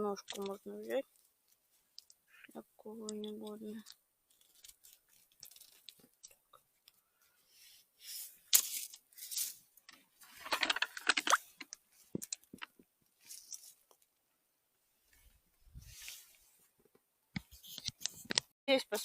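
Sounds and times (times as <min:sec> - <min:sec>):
twigs crunching and rustling: 0:03.0 - 0:06.4
twig cracking: 0:04.3 - 0:06.3.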